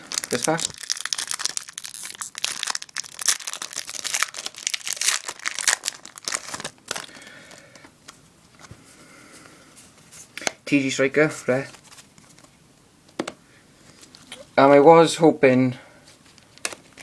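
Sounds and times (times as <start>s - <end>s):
foil pack tearing and crinkling: 0.0s - 7.6s.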